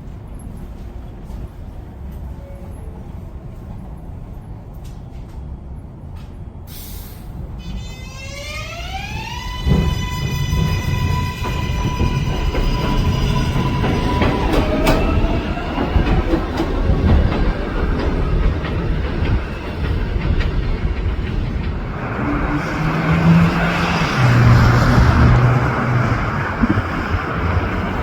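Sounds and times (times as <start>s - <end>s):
hiss: 6.7s - 7.4s
train wheels clattering on rails: 9.4s - 28.0s.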